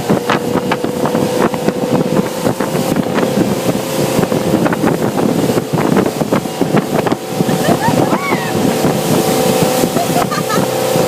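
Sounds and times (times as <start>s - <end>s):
hull splashing on water: 0.0s - 11.0s
motorboat engine: 0.0s - 11.0s
wind buffeting microphone: 0.0s - 11.0s.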